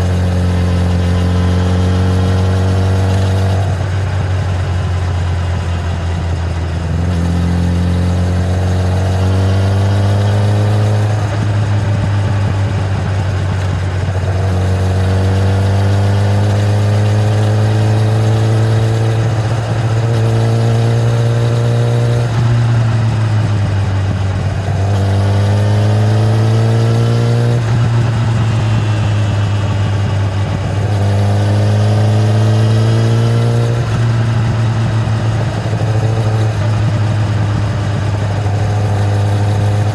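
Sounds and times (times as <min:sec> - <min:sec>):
motorcycle engine accelerating: 0:00.0 - 0:39.9
steady low rumble: 0:27.6 - 0:31.3.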